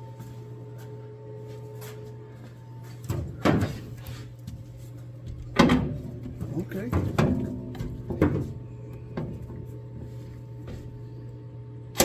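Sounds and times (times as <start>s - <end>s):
steady low hum: 0.0s - 12.0s
metal clunks: 5.3s - 11.0s.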